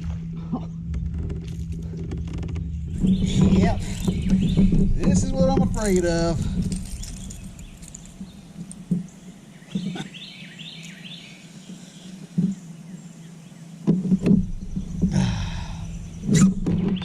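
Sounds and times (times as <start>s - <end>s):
low hum: 0.0s - 17.0s
dull knocks: 0.8s - 7.6s
bird chirps: 2.7s - 5.9s, 6.8s - 13.8s.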